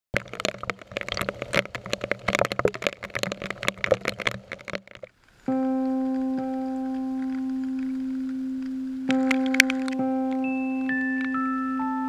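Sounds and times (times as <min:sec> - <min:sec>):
raindrops tapping camera: 0:00.2 - 0:11.5
held synth chord: 0:05.5 - 0:12.0.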